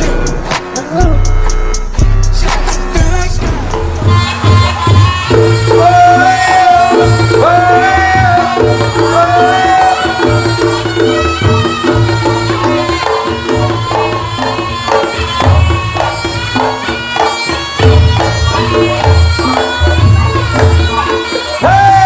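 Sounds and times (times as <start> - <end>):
drum strokes: 0.0 - 22.0
shawm playing melody: 0.0 - 22.0.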